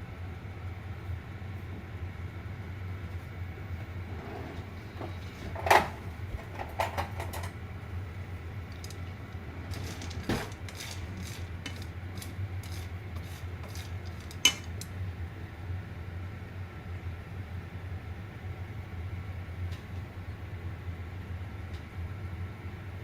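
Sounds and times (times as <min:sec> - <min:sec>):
steady low hum: 0:00.0 - 0:23.0
kitchenware clinking: 0:09.7 - 0:14.9.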